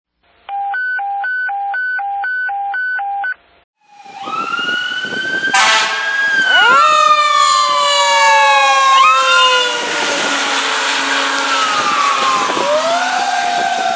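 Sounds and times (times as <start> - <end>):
mechanical siren whine: 3.8 - 13.9
two-tone electronic siren: 3.8 - 13.9
air horn blast: 5.5 - 13.9.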